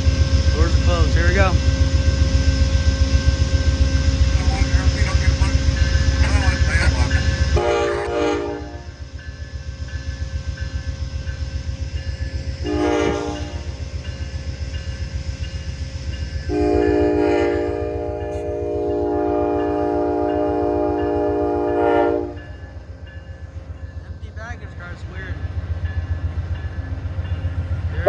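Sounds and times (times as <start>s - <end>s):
locomotive horn blasts: 7.6s - 9.0s, 12.6s - 13.8s, 16.5s - 22.5s.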